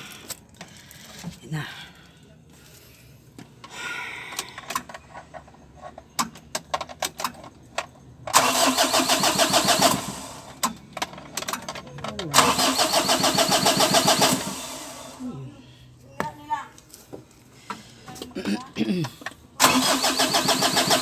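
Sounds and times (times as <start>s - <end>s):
diesel engine cranking: 3.6s - 15.6s, 19.1s - 21.0s.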